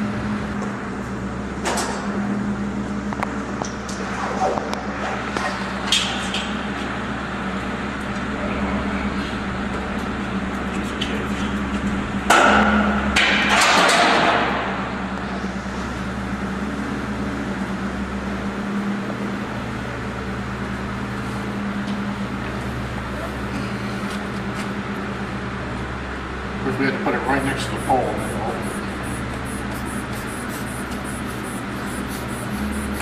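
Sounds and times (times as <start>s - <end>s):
vehicle engine idling: 5.6s - 13.2s, 14.6s - 33.0s
loud hissing rush: 27.2s - 33.0s.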